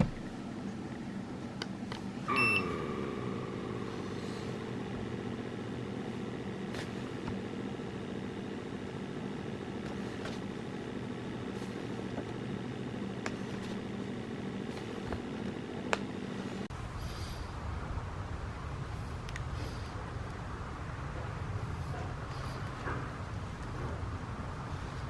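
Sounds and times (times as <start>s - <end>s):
mechanical hum: 0.0s - 25.0s
short electronic beep: 2.3s - 3.7s.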